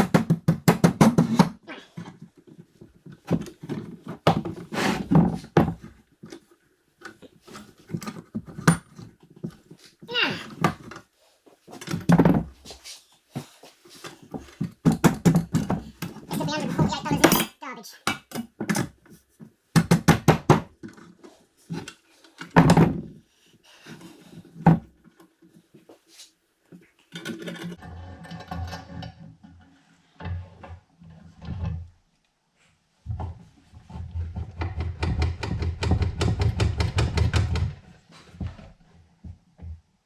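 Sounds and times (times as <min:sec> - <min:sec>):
metal and cardboard parts clunking: 0:18.2 - 0:23.2.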